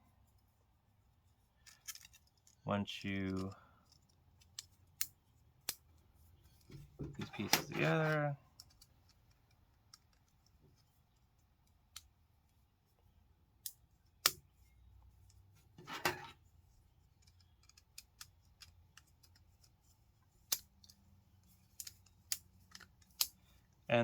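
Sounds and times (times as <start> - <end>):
plastic scrape: 6.8 - 8.2, 15.8 - 16.4.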